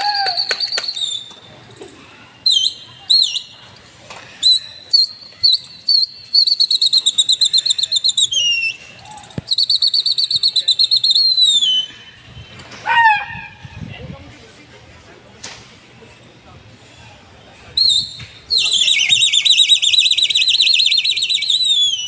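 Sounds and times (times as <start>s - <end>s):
high-pitched whistling: 4.4s - 12.2s, 17.8s - 22.0s.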